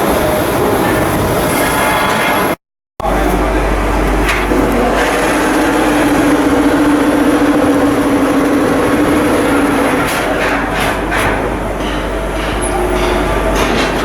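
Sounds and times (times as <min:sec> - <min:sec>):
heavy machinery rumble: 0:00.0 - 0:14.0
steady droning tone: 0:03.0 - 0:10.2.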